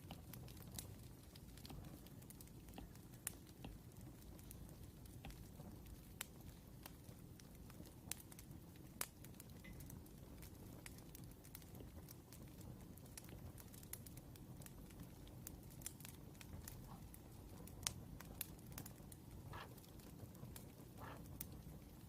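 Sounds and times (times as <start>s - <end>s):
wood fire crackling and popping: 0.0s - 22.0s
low steady rumble: 10.0s - 22.0s.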